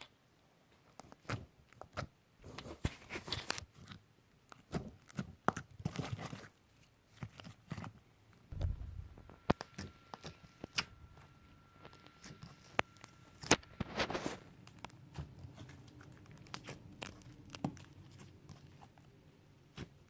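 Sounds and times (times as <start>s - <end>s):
soft low thump: 8.5s - 9.5s.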